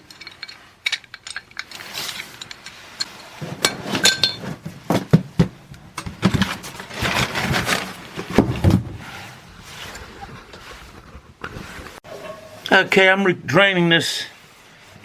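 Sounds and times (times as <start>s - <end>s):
metal tools clinking: 0.0s - 8.3s.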